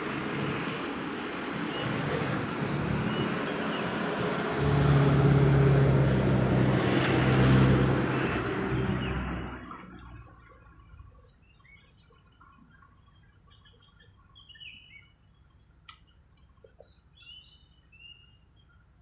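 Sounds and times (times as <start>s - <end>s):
road traffic passing: 0.0s - 11.2s
vehicle engine low hum: 0.0s - 17.7s.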